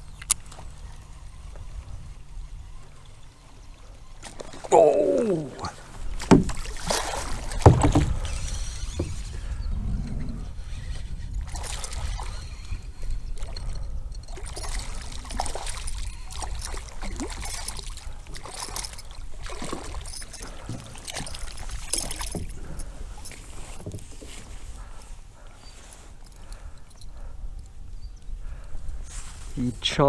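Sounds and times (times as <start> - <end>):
water splashing around kayak: 0.0 - 9.5, 11.2 - 27.3
wind rumble on microphone: 5.9 - 25.4.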